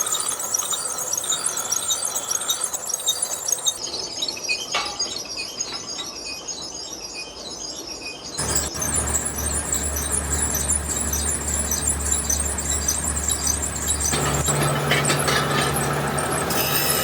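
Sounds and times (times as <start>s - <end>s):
rapid metallic clinking: 8.4s - 17.0s.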